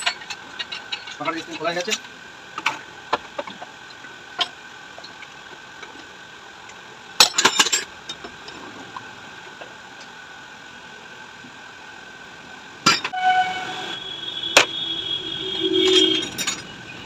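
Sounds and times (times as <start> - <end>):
faint steady high hum: 0.0 - 17.0
metal tools clinking: 15.8 - 16.9.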